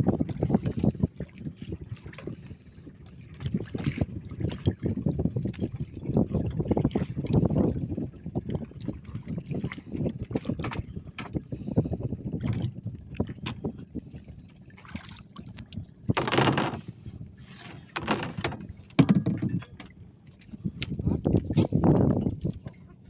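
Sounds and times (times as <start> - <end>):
water splashing around boat: 0.0 - 23.0
knocks on boat: 16.1 - 16.9, 17.9 - 19.9.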